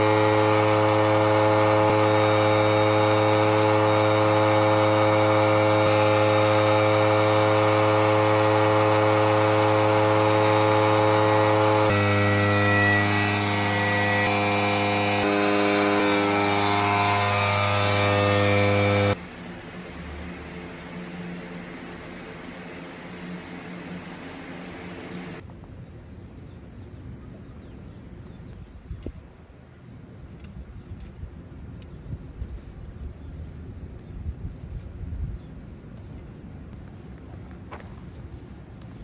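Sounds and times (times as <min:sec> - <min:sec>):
power tool motor running: 0:00.0 - 0:25.4.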